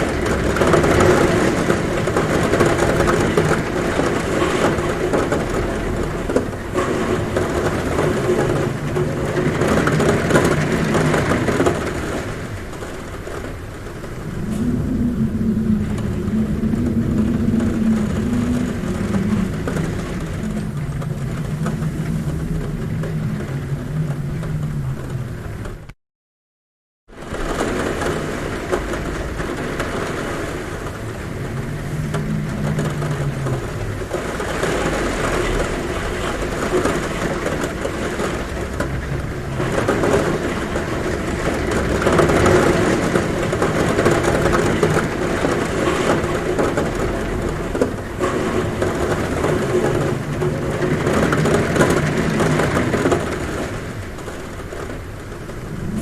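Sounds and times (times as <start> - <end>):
heavy rain drumming on a roof: 0.0 - 26.0, 27.1 - 56.0
low hum: 14.0 - 26.0, 55.2 - 56.0.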